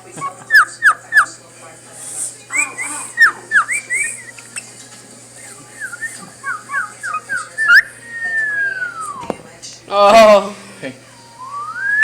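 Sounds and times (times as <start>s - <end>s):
cockatiel whistling: 0.2s - 1.4s, 2.5s - 4.7s, 5.4s - 9.3s, 11.4s - 12.0s.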